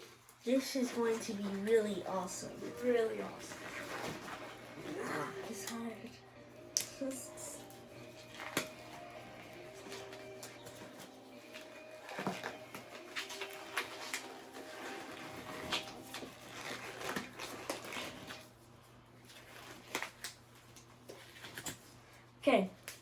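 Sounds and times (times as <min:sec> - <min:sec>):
gloves rustling and clicking: 0:00.0 - 0:06.1, 0:06.7 - 0:22.0.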